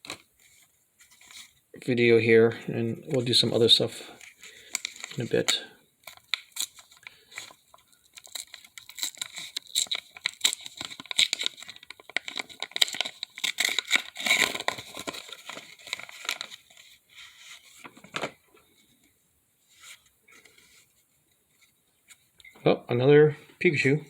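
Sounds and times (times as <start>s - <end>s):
card pack wrapper tearing and crinkling: 4.2s - 18.3s.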